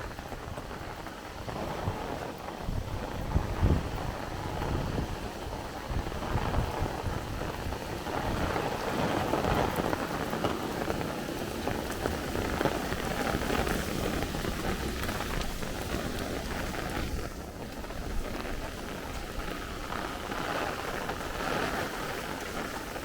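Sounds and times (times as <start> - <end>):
heavy rain pouring: 0.0 - 23.0
wind buffeting microphone: 0.0 - 23.0.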